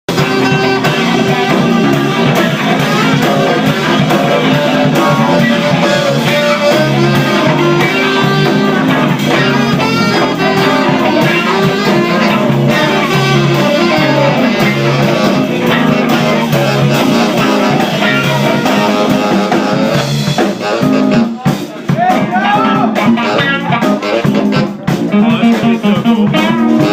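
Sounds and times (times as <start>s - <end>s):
bass line: 0.1s - 26.9s
drum beat: 0.1s - 26.9s
guitar: 0.1s - 26.9s.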